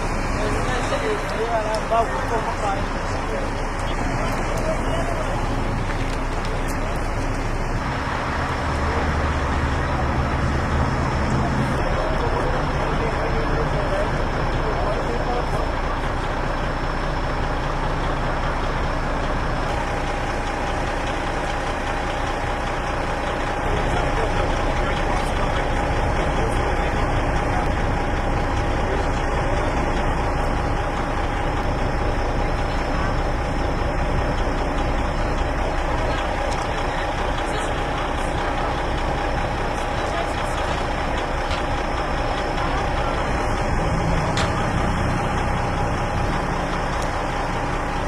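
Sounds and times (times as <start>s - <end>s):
heavy vehicle engine idling: 0.0s - 48.0s
steady whine: 0.0s - 48.0s.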